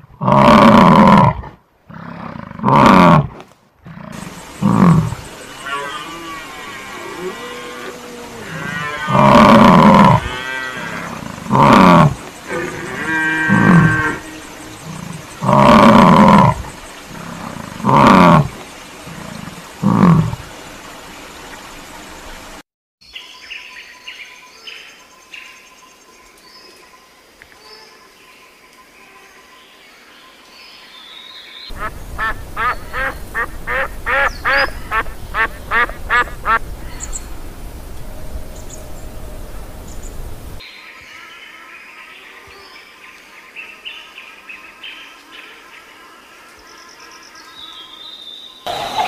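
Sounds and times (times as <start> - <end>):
bison bellowing: 3.9 - 18.5.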